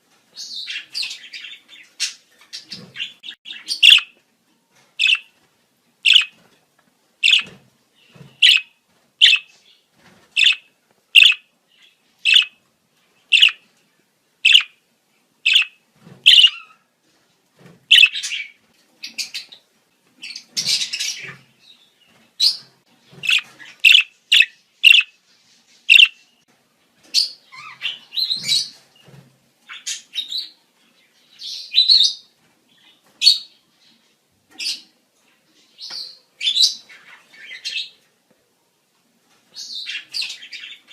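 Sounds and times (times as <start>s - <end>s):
budgerigars chirping: 0.4s - 4.2s, 5.0s - 5.3s, 6.0s - 6.4s, 7.2s - 9.6s, 10.4s - 12.6s, 13.3s - 13.6s, 14.4s - 14.8s, 15.5s - 16.8s, 17.9s - 18.5s, 23.2s - 25.2s, 25.9s - 26.2s.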